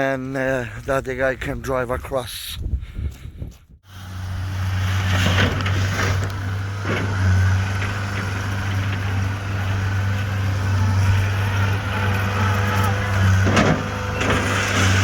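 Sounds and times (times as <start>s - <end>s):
skid steer engine running: 3.9s - 15.0s.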